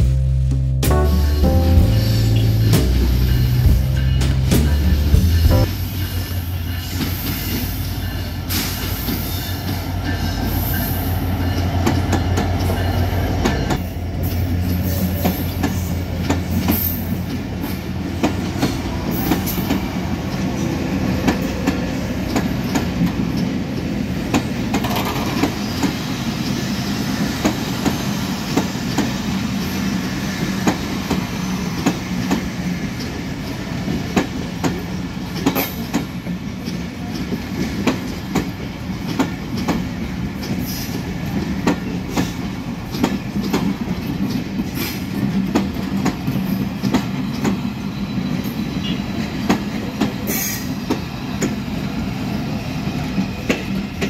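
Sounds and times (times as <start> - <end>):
locomotive engine drone: 0.0 - 6.8
train running rumble: 0.0 - 54.0
train wheels clacking over rail joints: 2.7 - 26.6, 27.2 - 54.0.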